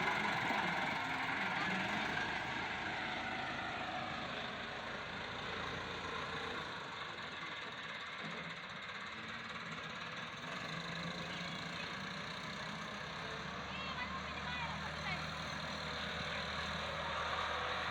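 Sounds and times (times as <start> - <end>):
tractor engine running: 0.0 - 10.1.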